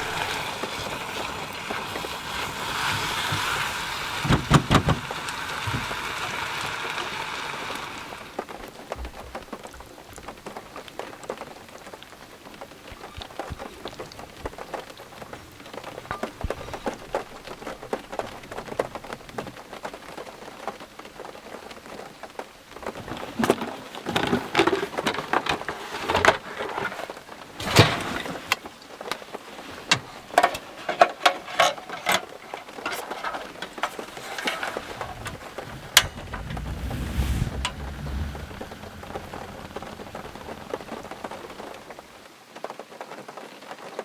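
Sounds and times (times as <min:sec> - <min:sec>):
heavy rain falling: 0:00.0 - 0:12.8, 0:17.4 - 0:43.1
large raindrops striking close: 0:32.0 - 0:42.2.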